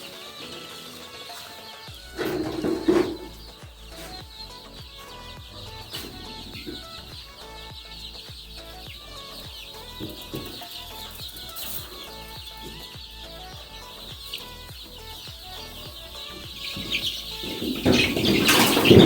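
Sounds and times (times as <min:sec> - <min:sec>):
chickens peeping and clucking: 0:00.0 - 0:19.0.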